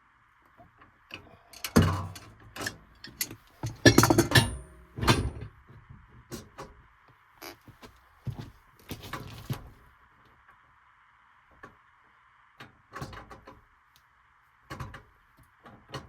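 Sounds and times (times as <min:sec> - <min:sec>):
metal knocks and clanks: 0:01.6 - 0:05.5.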